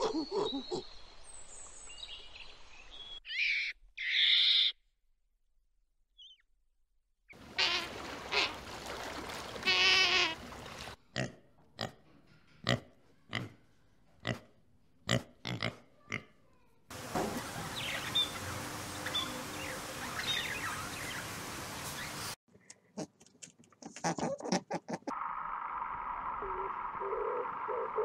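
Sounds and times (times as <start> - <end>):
budgerigars chirping: 17.7 - 22.3.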